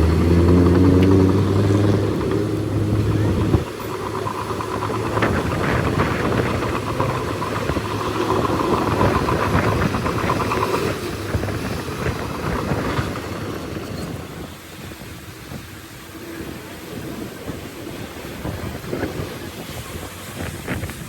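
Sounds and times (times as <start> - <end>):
rattling clanking clatter: 0.0 - 14.6
bulldozer diesel engine running: 0.0 - 21.0.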